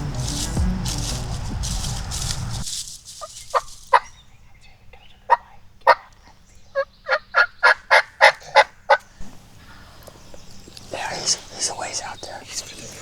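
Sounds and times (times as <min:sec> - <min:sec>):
background music: 0:00.0 - 0:02.6
turkey yelping: 0:03.2 - 0:04.2, 0:06.8 - 0:11.4.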